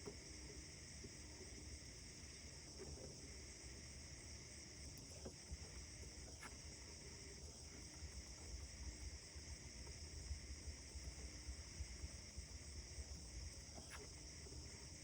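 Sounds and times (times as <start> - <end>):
faint ticks: 4.8 - 15.0.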